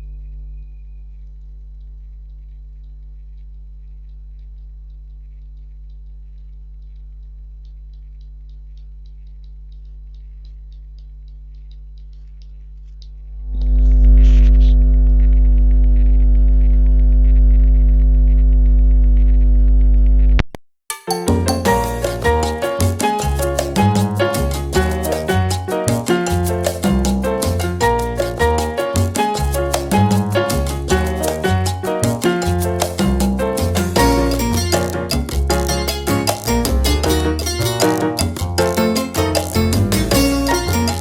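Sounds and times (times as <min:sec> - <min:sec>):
steady low hum: 0:00.0 - 0:20.4
music with quick beat: 0:20.9 - 0:41.0.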